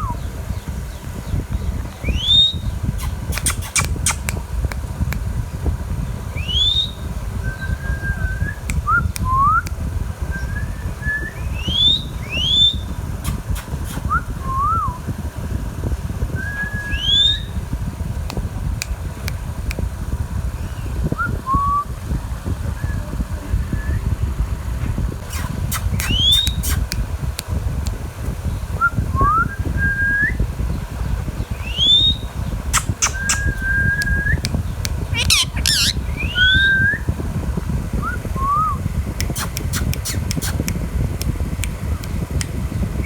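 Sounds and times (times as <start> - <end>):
steady low rumble: 0.0 - 43.0
parakeet whistling: 2.0 - 4.4, 6.4 - 9.6, 10.4 - 15.0, 16.4 - 17.6, 25.3 - 27.0, 31.5 - 37.1, 38.0 - 40.7
sharp clicks: 3.0 - 5.3, 25.2 - 28.0, 32.8 - 36.0, 39.2 - 42.6.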